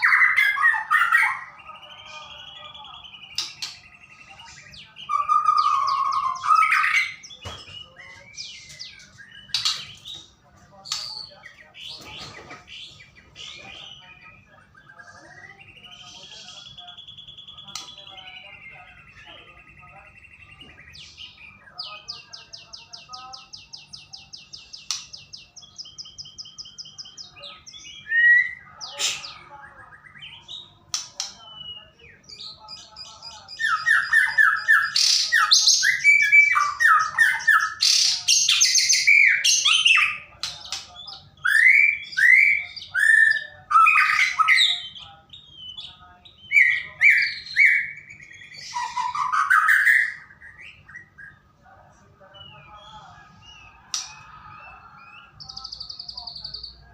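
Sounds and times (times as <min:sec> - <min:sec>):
bird whistled phrases: 0:46.5 - 0:51.4.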